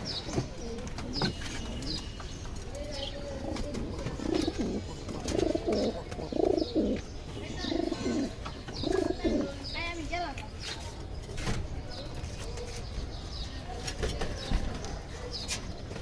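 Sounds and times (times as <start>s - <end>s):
pigeons cooing: 2.9s - 9.7s.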